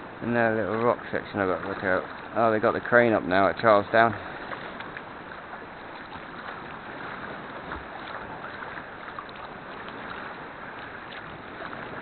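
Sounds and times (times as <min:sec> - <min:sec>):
paddle splashes: 0:00.0 - 0:12.0
water washing: 0:00.0 - 0:12.0.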